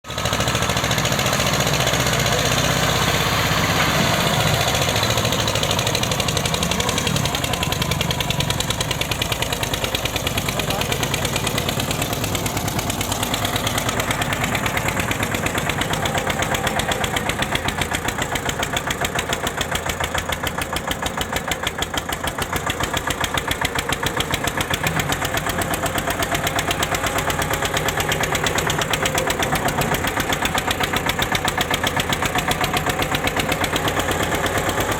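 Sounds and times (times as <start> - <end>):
tractor diesel engine thudding: 0.1 - 34.9.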